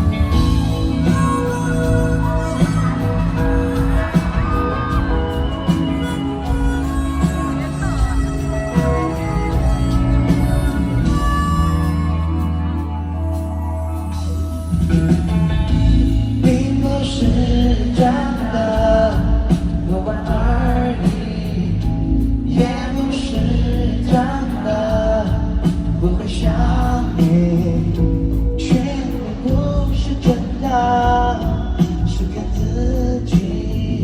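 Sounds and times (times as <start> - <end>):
live band music over pa: 0.0 - 34.0.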